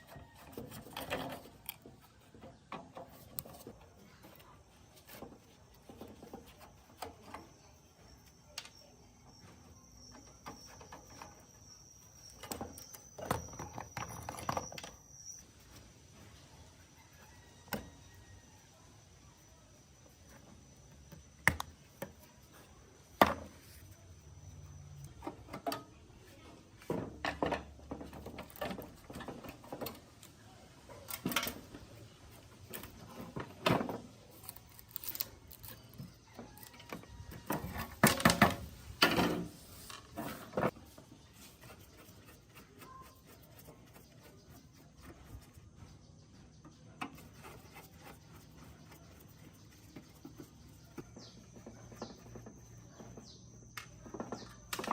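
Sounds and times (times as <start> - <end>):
rubbing on metal parts: 31.2 - 46.0, 47.0 - 53.4.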